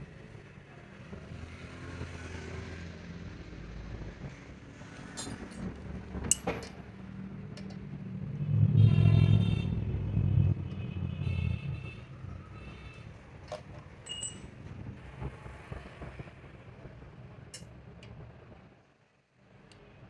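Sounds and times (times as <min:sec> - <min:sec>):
vehicle engine passing: 0:01.3 - 0:13.8.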